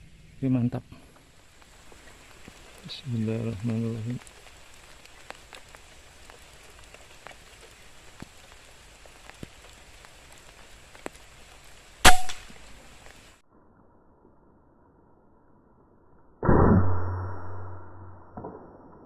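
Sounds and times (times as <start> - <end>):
faint patter of rain drips: 0.0 - 13.4
air rifle shot: 12.1 - 12.5.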